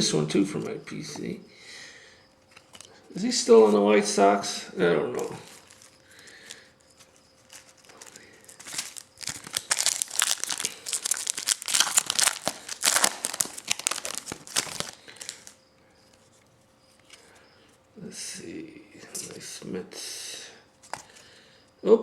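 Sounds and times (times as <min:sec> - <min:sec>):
wrapper crinkling and tearing: 0:05.2 - 0:15.6.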